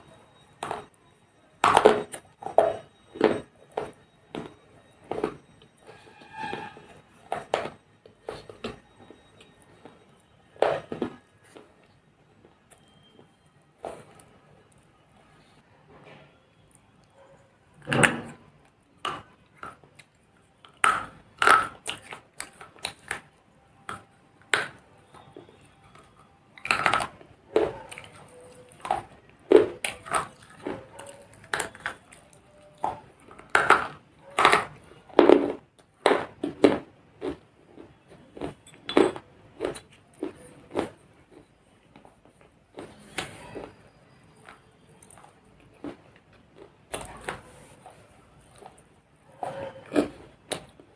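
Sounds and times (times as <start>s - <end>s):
clay pots crunching and breaking: 0.0s - 14.8s, 17.8s - 50.9s.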